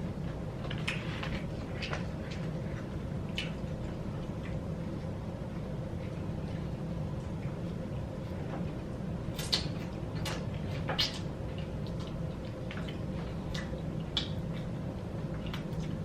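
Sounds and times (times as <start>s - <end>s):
low hum: 0.0s - 16.0s
quiet chewing: 0.0s - 16.0s.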